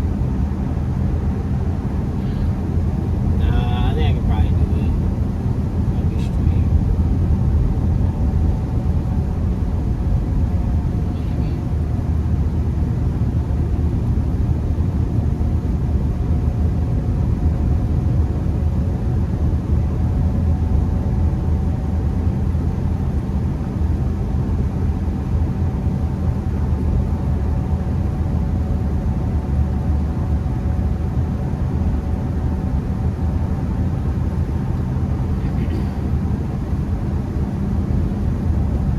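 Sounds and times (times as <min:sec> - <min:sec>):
faint steady hum: 0:00.0 - 0:38.9
in-cabin road and engine rumble: 0:00.0 - 0:38.9.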